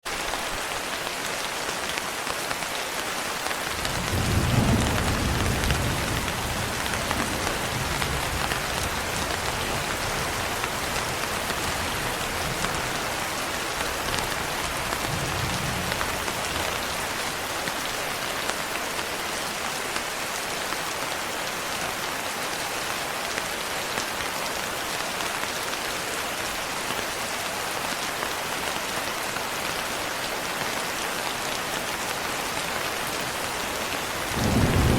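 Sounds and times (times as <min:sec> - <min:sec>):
rain pattering on window: 0:01.7 - 0:19.2
thunder rumbling: 0:03.8 - 0:13.1, 0:33.8 - 0:34.9.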